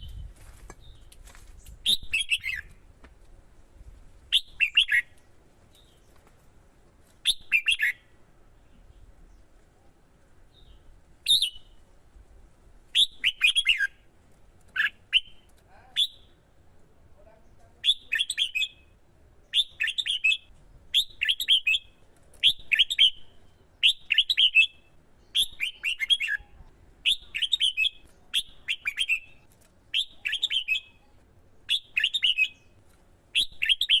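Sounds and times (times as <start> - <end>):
bulbul singing: 4.3 - 5.2, 7.2 - 8.2, 12.9 - 14.1, 17.8 - 34.0.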